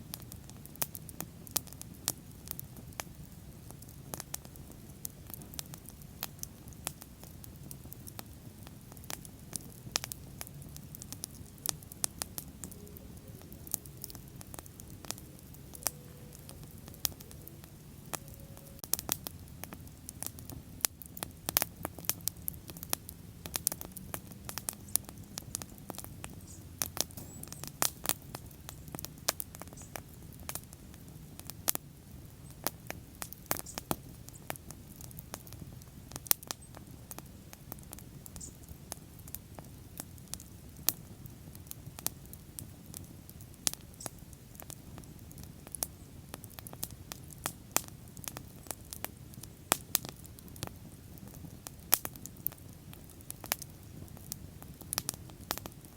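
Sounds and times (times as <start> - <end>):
bonfire crackles and pops: 0.0 - 55.9
low rumble of flames: 0.0 - 55.9.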